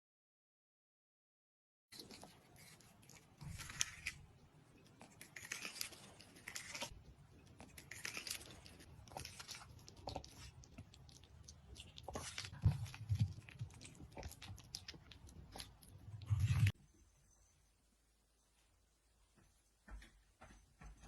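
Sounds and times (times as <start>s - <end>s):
cat gnawing at corn: 1.9s - 16.8s.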